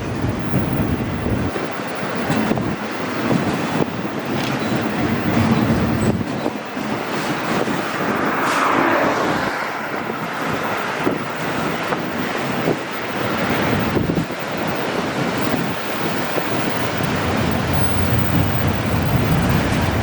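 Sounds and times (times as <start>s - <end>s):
train wheels rumbling on rail: 0.0s - 20.0s
wind buffeting microphone: 0.0s - 20.0s
train cars clanking: 1.8s - 9.1s, 10.1s - 20.0s.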